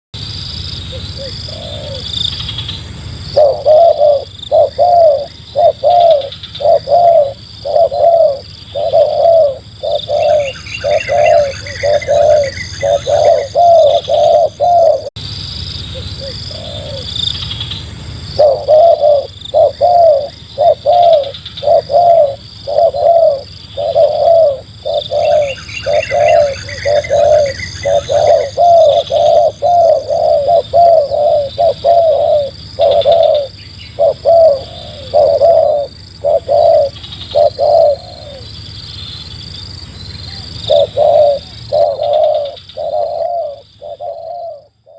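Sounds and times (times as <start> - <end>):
bird chirping: 0.8 - 44.9
dove cooing: 0.9 - 15.2, 15.9 - 17.7, 18.3 - 38.6, 40.2 - 44.9.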